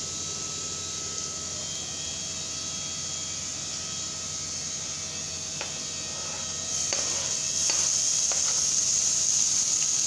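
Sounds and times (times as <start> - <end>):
onions sizzling in hot oil: 4.5 - 10.0.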